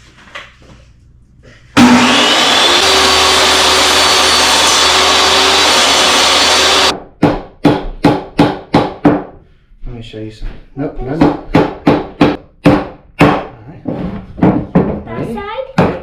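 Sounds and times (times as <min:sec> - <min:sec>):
power saw running: 0:01.8 - 0:06.9.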